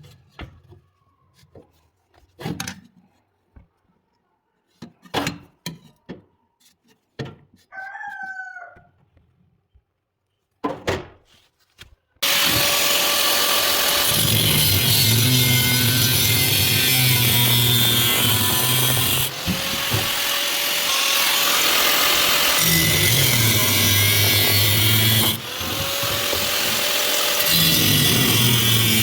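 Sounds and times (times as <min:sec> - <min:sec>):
metalworking tool running: 0:12.2 - 0:29.0.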